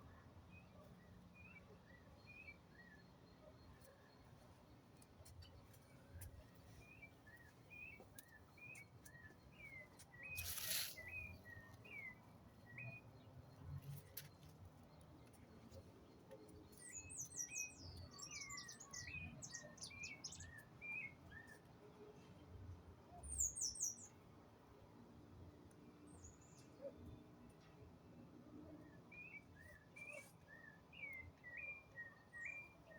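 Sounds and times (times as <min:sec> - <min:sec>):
small birds chirping: 0:01.4 - 0:21.6.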